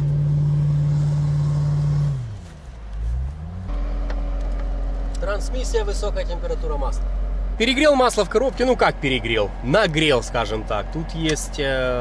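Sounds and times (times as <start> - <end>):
car engine driving through sand: 0.0 - 5.0
car engine idling: 0.0 - 12.0.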